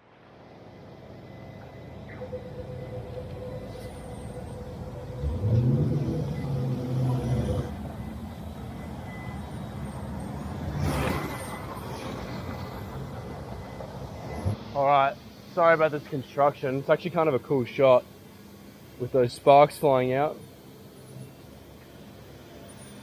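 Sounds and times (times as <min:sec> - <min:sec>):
street background noise: 0:00.0 - 0:23.0
construction motor revving: 0:04.6 - 0:13.4.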